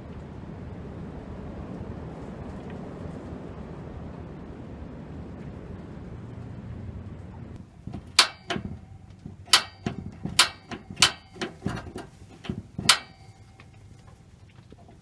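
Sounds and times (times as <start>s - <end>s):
metallic clanks and knocks: 7.6s - 15.0s.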